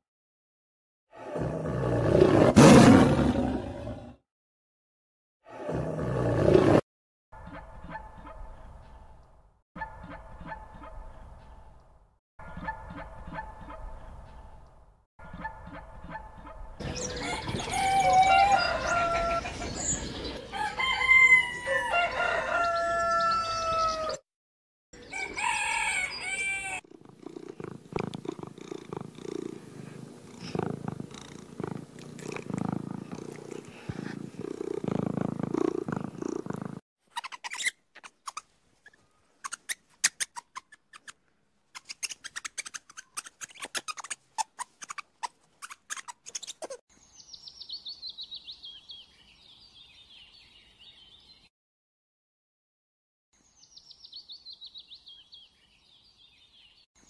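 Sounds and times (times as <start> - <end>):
low rough steady animal sound: 26.7 - 36.8.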